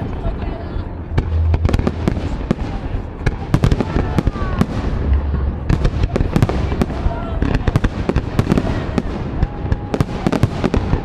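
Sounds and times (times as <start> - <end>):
fireworks bangs and crackles: 0.0 - 11.0
low rumble: 0.8 - 3.5, 4.6 - 6.2.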